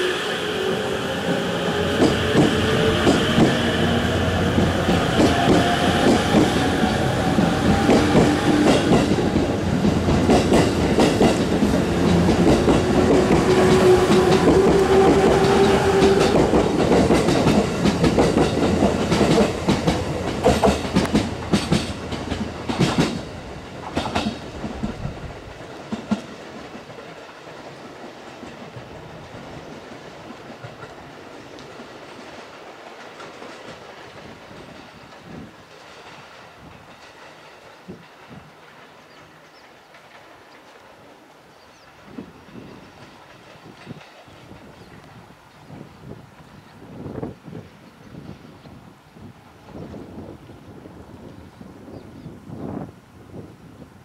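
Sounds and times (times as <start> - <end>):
faint distant train noise: 0.0 - 54.0
train wheels clacking over joints: 0.5 - 29.0, 31.6 - 40.8.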